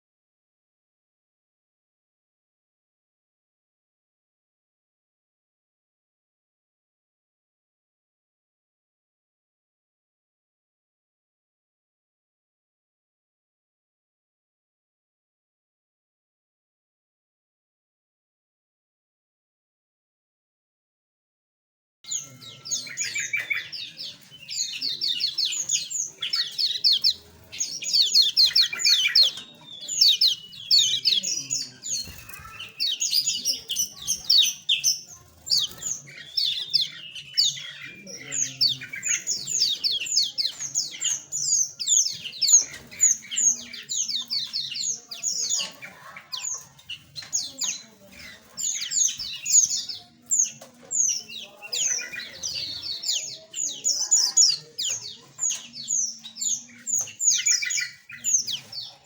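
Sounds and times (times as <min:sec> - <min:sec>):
small birds chirping: 0:22.0 - 0:59.0.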